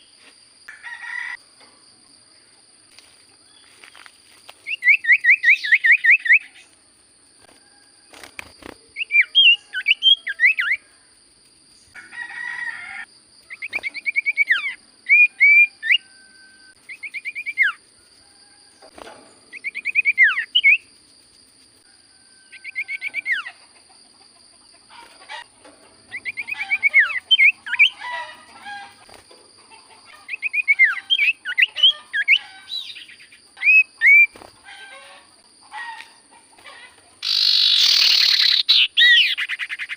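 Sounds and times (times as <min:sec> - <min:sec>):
bird whistling fast phrases: 0:37.2 - 0:39.9.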